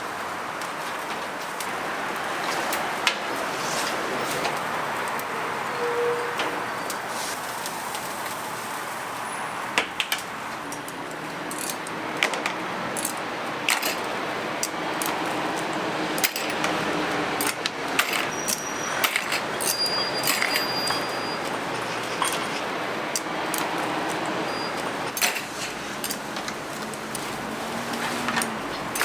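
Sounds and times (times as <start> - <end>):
steady background hiss: 0.0 - 17.9
metal kitchenware clinking: 19.0 - 22.7.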